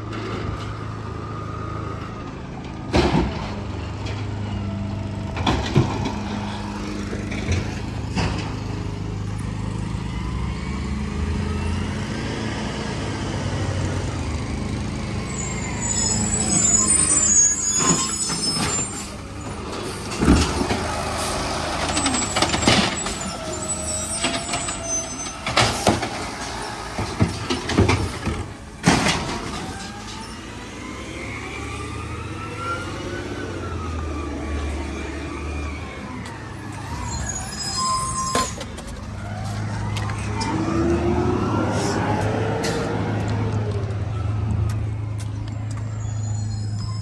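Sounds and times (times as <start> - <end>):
loud metal bangs and clanks: 24.3 - 30.2.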